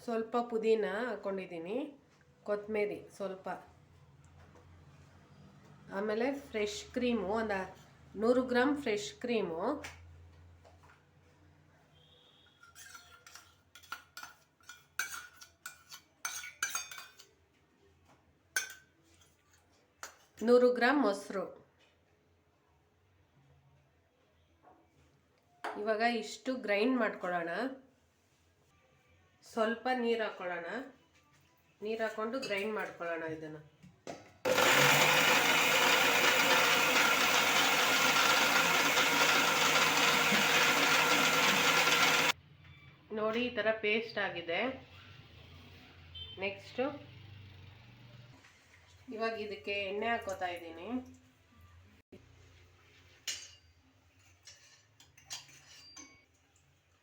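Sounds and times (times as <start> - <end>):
spoon clinking on a dish: 12.6 - 17.3
mixer grinder running: 34.5 - 42.4.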